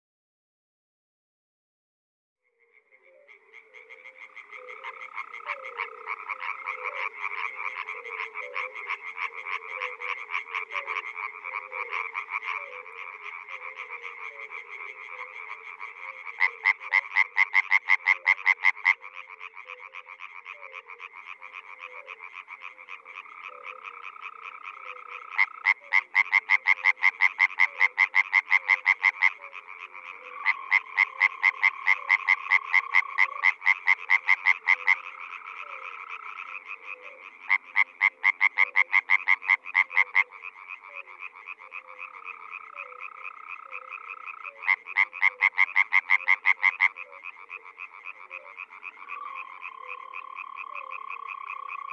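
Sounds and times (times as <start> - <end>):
frog chorus: 2.4 - 51.9.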